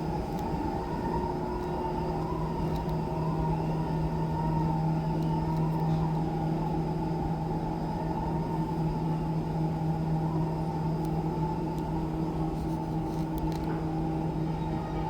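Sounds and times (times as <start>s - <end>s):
escalator mechanical hum: 0.0s - 15.0s.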